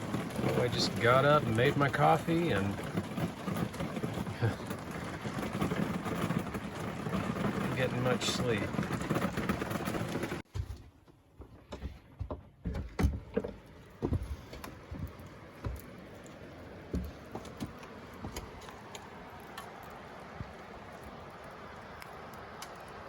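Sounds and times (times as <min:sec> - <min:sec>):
rain pattering on roof: 0:00.0 - 0:10.5, 0:13.2 - 0:23.0
knocks and clatters: 0:00.0 - 0:15.9.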